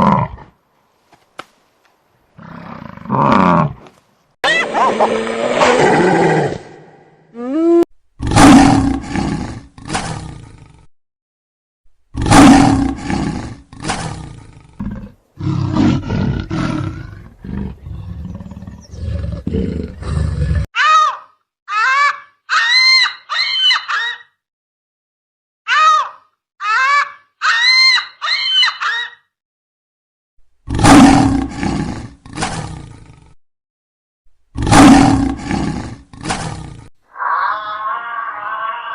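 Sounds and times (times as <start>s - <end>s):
lion roaring: 2.4s - 3.8s, 4.5s - 7.1s, 8.2s - 10.9s, 12.2s - 20.7s, 30.7s - 33.4s, 34.6s - 38.9s
high-pitched animal calls: 20.8s - 24.2s, 25.7s - 29.2s, 37.1s - 38.9s.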